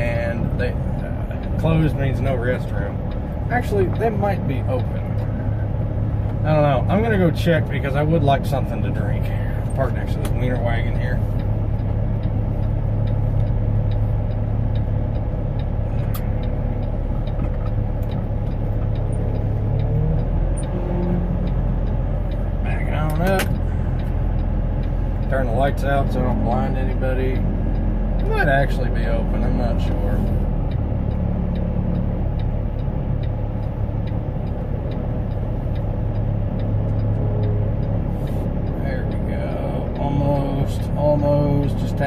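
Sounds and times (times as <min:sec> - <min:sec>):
diesel truck engine running: 0:00.0 - 0:42.0
sharp clicks: 0:09.6 - 0:26.5.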